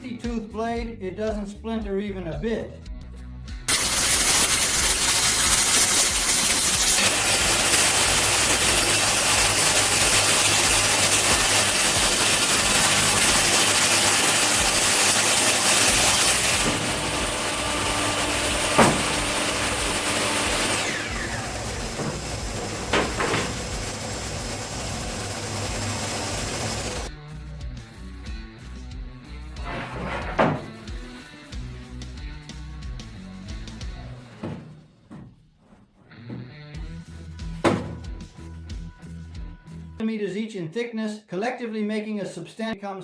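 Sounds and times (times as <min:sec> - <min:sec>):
table saw running: 0:03.7 - 0:27.1, 0:29.6 - 0:31.0, 0:33.6 - 0:35.4
sharp knocks: 0:09.5 - 0:25.6, 0:29.6 - 0:31.0, 0:34.1 - 0:36.5, 0:37.6 - 0:38.2.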